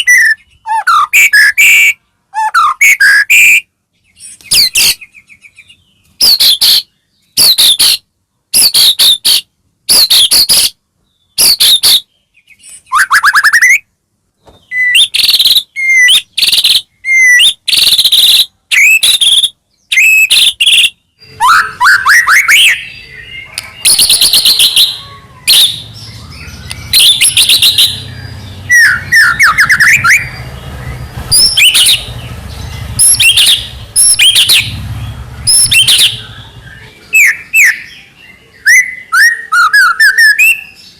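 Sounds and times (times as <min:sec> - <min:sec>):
songbird whistling: 0:00.0 - 0:13.9, 0:14.6 - 0:40.9.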